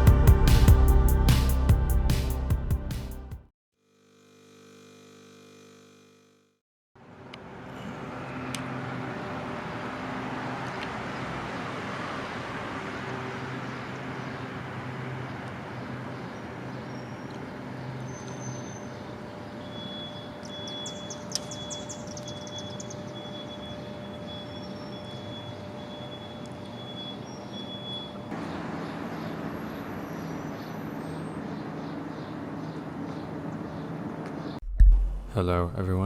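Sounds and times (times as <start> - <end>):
distant traffic: 7.2 - 34.6
bird chirping: 16.2 - 28.2.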